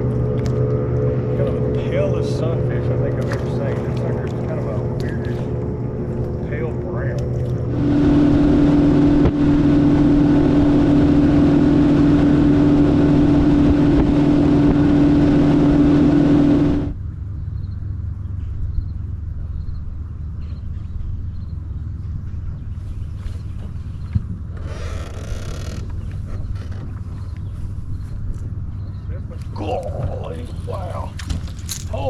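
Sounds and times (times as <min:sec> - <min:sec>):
outboard motor running: 0:00.0 - 0:17.0, 0:22.5 - 0:32.0
low engine rumble: 0:00.0 - 0:32.0.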